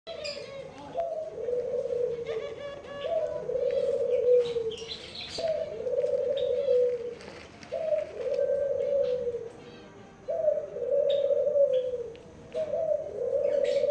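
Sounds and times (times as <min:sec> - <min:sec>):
pigeons cooing: 0:00.1 - 0:13.9
bird chirps: 0:02.5 - 0:06.9.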